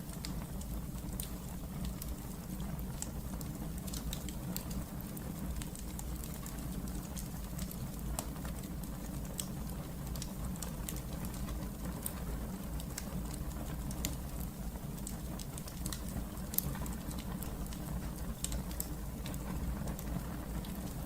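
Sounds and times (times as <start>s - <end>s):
fire crackles and pops: 0.0s - 21.0s
low rumble of flames: 0.0s - 21.0s.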